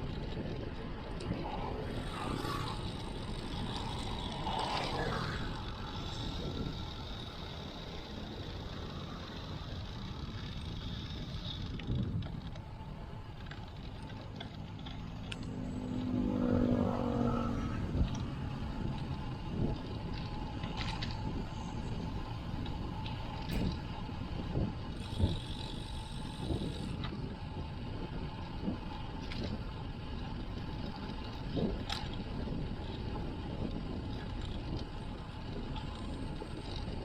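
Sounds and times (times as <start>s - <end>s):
motor vehicle passing: 0.0s - 27.0s
road and wind noise: 0.0s - 37.0s.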